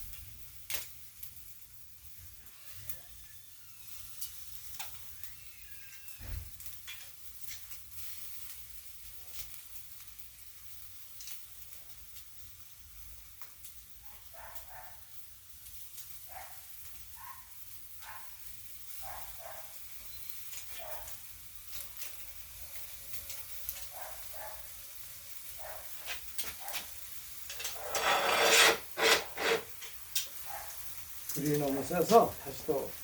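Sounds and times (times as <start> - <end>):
meat sizzling on grill: 0.0 - 33.0
small squeaks: 27.5 - 29.9
grill clattering shut: 27.5 - 30.0.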